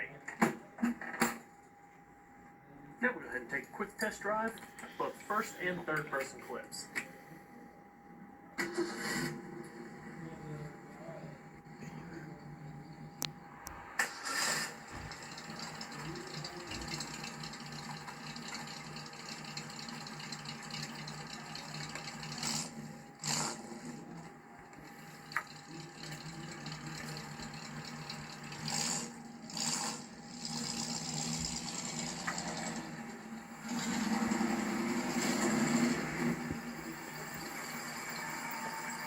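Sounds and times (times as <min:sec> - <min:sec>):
car engine running: 0:14.9 - 0:39.0.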